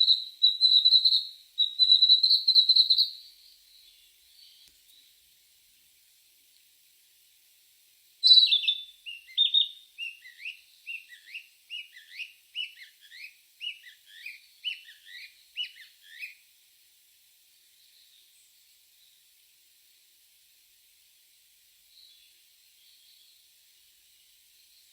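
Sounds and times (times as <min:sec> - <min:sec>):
bird singing: 0:00.0 - 0:05.2, 0:08.2 - 0:16.4.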